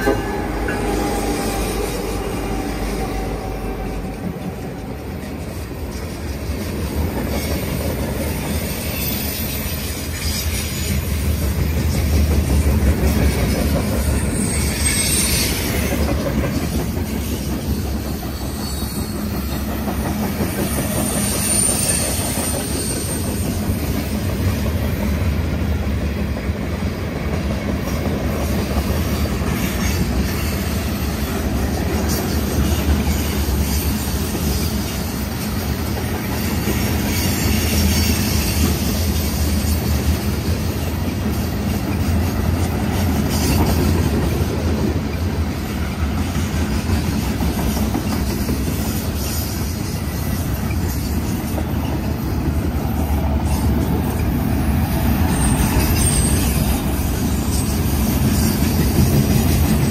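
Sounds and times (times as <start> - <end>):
rhythmic clatter over rail joints: 0.0 - 59.9
train wheels rumbling on rail: 0.0 - 59.9
faint high wheel squeal: 7.3 - 11.1, 13.2 - 16.2, 17.0 - 19.8, 20.4 - 23.8, 36.4 - 42.5, 47.7 - 59.5.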